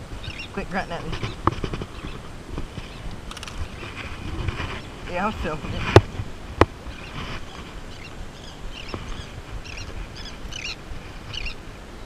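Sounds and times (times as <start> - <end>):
low rumble of wind and water: 0.0 - 12.0
bird chirping: 0.2 - 2.2, 6.9 - 11.6.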